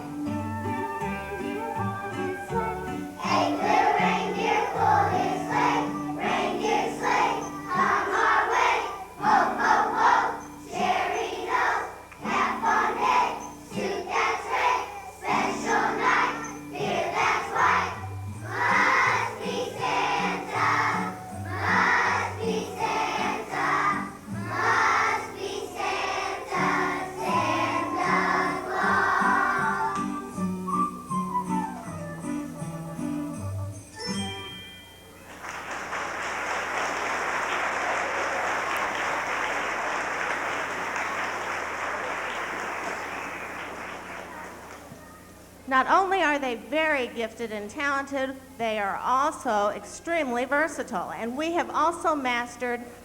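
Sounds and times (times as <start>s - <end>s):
instrumental accompaniment with bass: 0.0s - 4.2s, 27.4s - 34.7s
children's choir singing: 0.0s - 30.8s.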